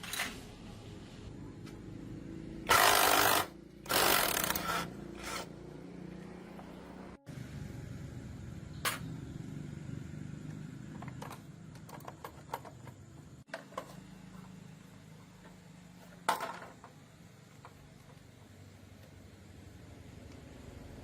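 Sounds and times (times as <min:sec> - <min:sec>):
tools clicking and knocking: 0:10.9 - 0:14.0.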